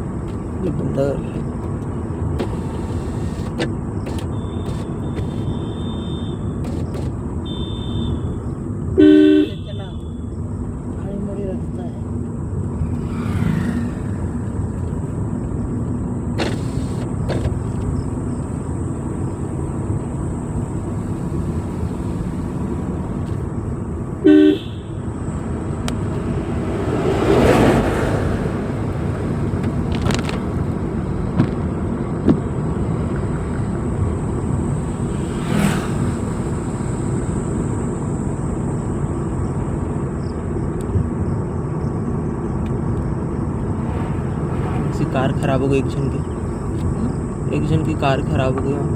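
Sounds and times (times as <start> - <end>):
car engine and road noise: 0.0 - 48.9
car horn toot: 4.1 - 10.5, 24.2 - 25.8
rushing noise: 43.5 - 46.8.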